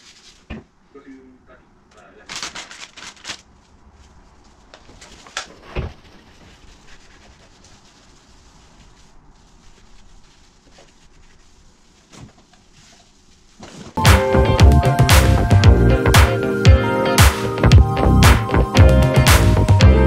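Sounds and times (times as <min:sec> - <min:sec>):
handling and wiping sounds: 0:00.0 - 0:00.7, 0:03.2 - 0:14.0.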